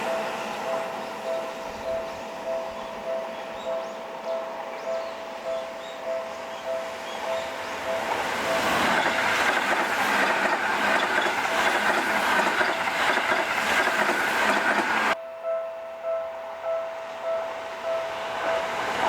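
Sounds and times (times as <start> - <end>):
two-note ringing: 0.0 - 8.6, 15.2 - 19.0
train wheels clattering on rails: 7.0 - 15.2.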